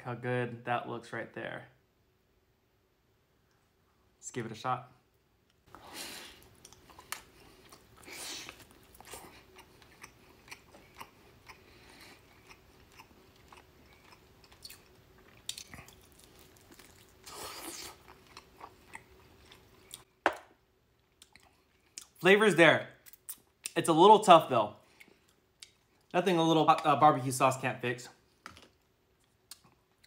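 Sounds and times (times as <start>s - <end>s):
close-up chewing of meat: 6.3s - 20.1s.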